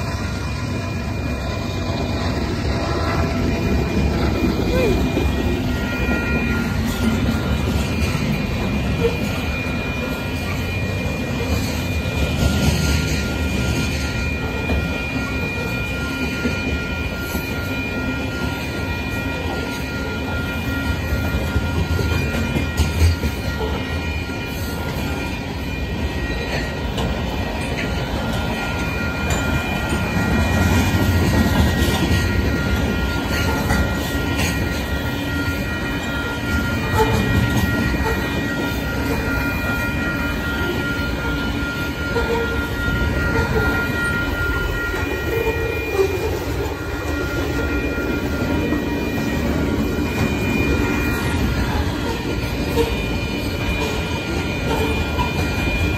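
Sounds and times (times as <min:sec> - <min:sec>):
freight train wheels rumbling: 0:00.0 - 0:55.9
high-pitched tones: 0:00.0 - 0:55.9
wheel clacks on rail: 0:20.9 - 0:55.9.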